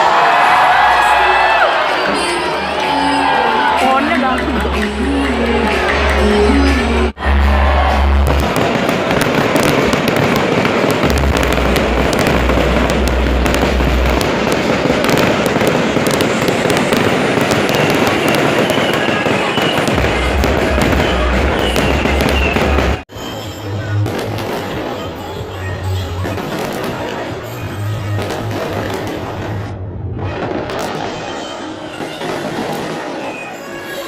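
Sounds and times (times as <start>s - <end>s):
fireworks crackling and popping: 7.8s - 23.1s, 23.9s - 34.0s
deep low rumble: 11.1s - 14.3s.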